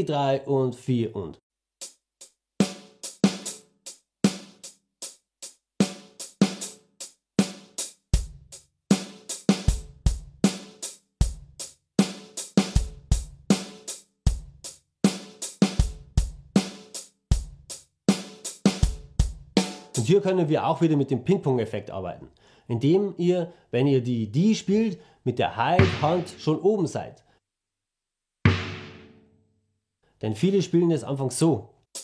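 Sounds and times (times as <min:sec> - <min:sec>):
drum kit rock groove: 0:01.8 - 0:20.1, 0:25.8 - 0:26.6, 0:28.5 - 0:29.2
bass drum hits: 0:25.8 - 0:26.5, 0:28.5 - 0:29.2.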